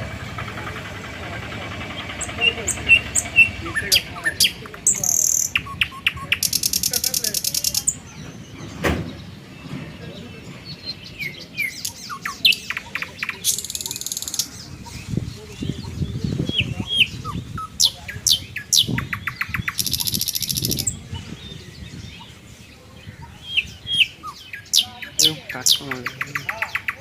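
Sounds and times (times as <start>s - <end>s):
birds chirping and calling: 0.0s - 27.0s
buzzy rapid bird trill: 1.8s - 8.0s, 17.6s - 20.9s.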